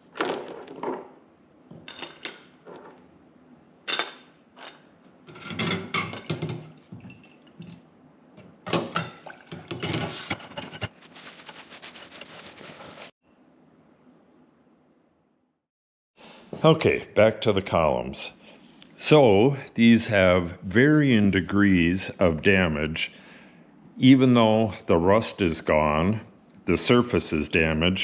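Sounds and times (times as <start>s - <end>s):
liquid splashing and sloshing: 6.5s - 7.9s, 9.1s - 9.9s.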